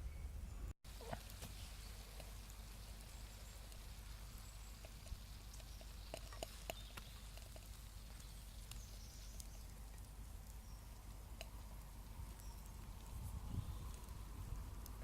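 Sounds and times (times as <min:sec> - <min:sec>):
bacon frying hiss: 0:00.9 - 0:15.0
wood fire crackling and popping: 0:00.9 - 0:15.0.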